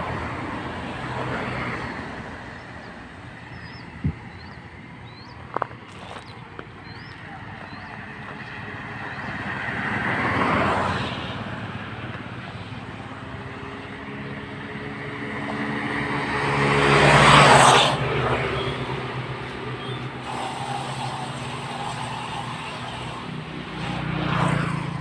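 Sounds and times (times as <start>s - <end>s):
vehicle engine passing: 0.0s - 25.0s
vehicle swishing past: 14.5s - 25.0s.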